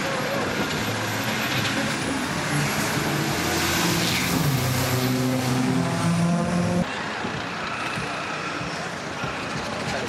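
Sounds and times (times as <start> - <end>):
car engine revving: 0.5 - 6.9.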